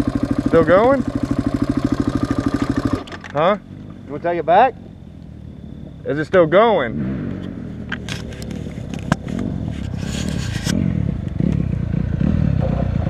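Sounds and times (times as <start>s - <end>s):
vehicle engine running: 0.0s - 13.0s
short scraping rattle: 7.3s - 10.8s.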